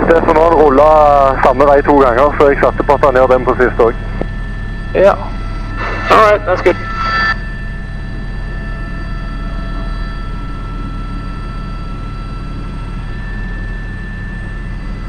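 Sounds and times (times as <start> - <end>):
helicopter turbine and rotor: 0.0 - 15.0.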